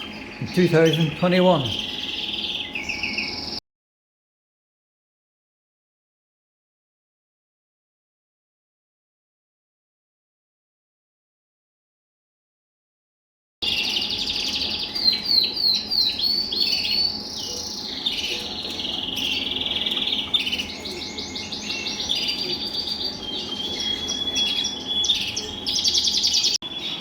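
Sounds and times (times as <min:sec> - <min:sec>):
canaries singing trills: 0:00.0 - 0:03.6, 0:13.6 - 0:27.0.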